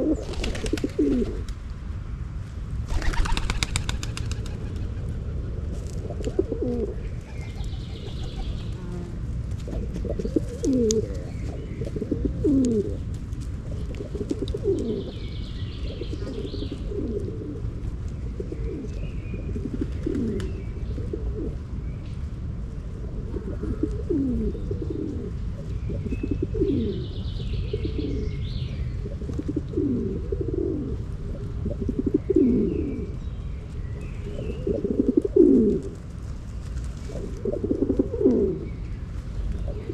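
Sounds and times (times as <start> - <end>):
pigeons cooing: 0.0 - 1.5, 2.9 - 13.0, 13.6 - 17.7, 18.3 - 21.6, 23.0 - 28.4, 29.0 - 33.2, 34.2 - 36.0, 36.9 - 38.8, 39.6 - 39.9
steady low rumble: 0.0 - 39.9
small birds chirping: 6.4 - 17.3.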